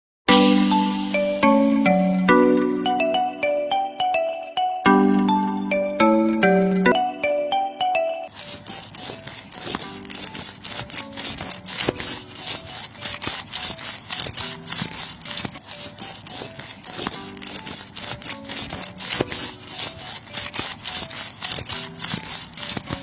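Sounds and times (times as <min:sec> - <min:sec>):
rhythmic hand scraping: 0:08.3 - 0:23.0.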